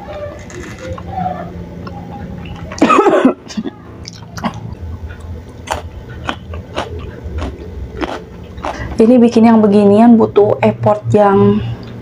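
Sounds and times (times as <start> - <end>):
chewing chewy food: 4.0 - 9.0.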